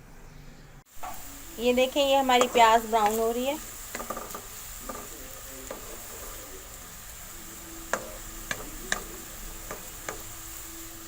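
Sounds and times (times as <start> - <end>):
onions sizzling in a pan: 0.9 - 11.0
utensil clicking against pan: 2.4 - 6.3, 7.9 - 10.3.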